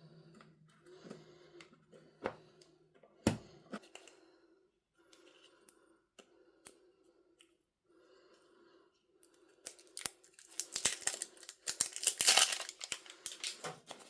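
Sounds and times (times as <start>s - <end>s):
light clicks and taps of packaging: 9.2s - 14.0s.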